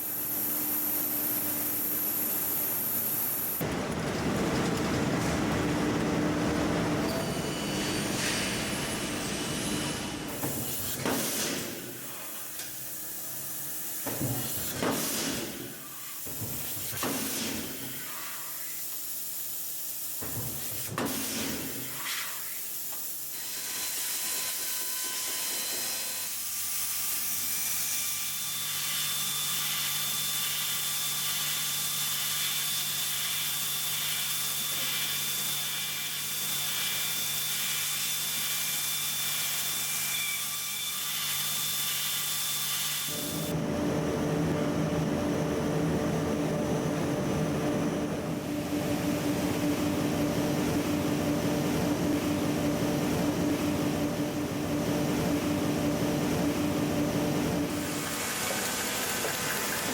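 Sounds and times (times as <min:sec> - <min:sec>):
machine hum with tones: 0:00.0 - 0:10.4, 0:43.1 - 0:58.0.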